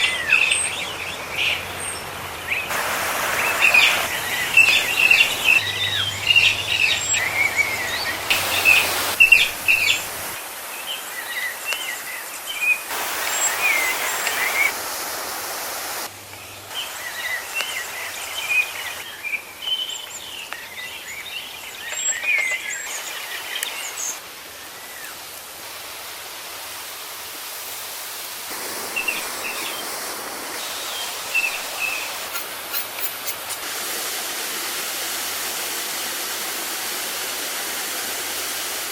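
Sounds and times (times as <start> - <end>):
background hiss: 0.0 - 38.9
birds chirping and singing: 3.3 - 10.3.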